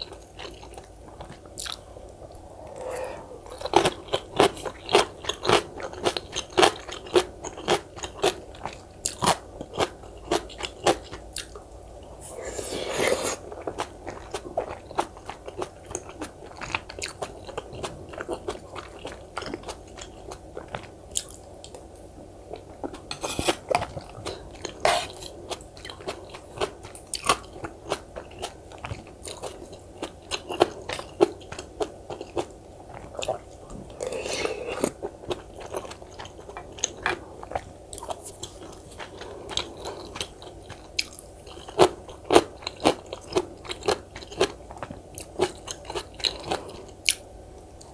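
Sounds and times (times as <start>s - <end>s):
chewing with crunchy bites: 0.0s - 47.9s.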